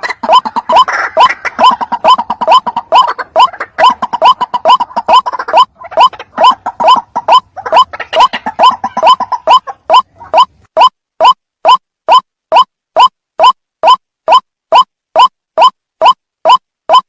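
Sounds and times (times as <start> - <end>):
waterhen calling: 0.0 - 10.9.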